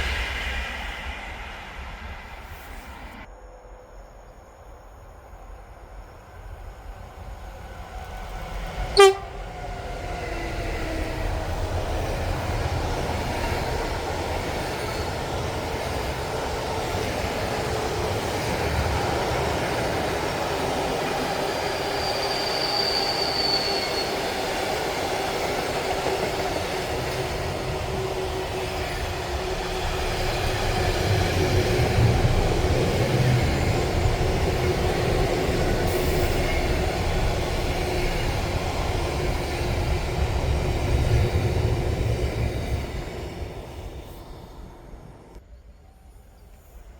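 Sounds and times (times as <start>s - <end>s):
train rumbling past: 0.0s - 46.9s
high squeal: 21.2s - 24.7s.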